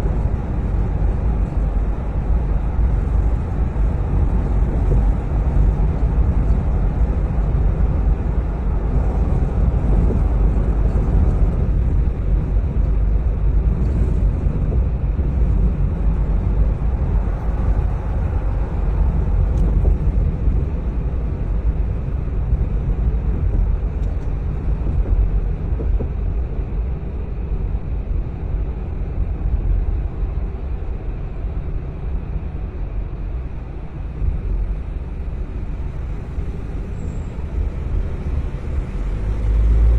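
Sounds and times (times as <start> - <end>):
car engine rumble: 0.0 - 39.9
road noise: 0.0 - 39.9.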